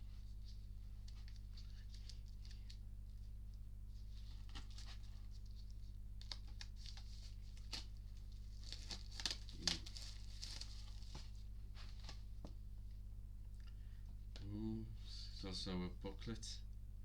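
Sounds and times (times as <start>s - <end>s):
low electrical hum: 0.0s - 17.0s
plastic package crinkling: 6.2s - 11.4s.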